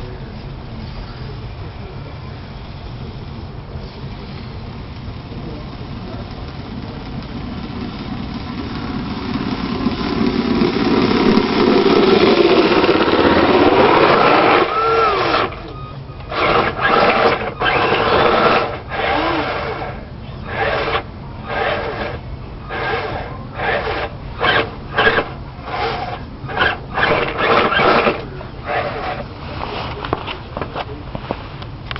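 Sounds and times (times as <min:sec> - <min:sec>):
remote control car motor whining: 0:08.6 - 0:29.3.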